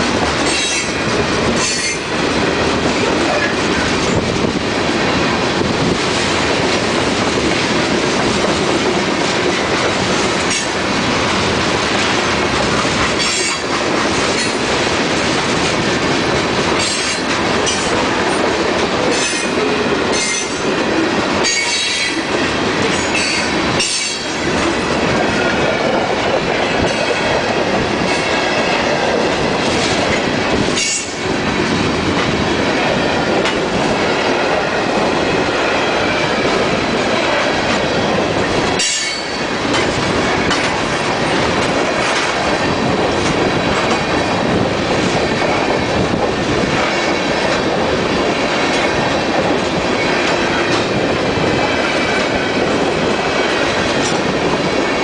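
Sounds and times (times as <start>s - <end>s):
freight train rumbling past: 0.0s - 55.0s
wheels clattering over rail joints: 5.6s - 32.4s.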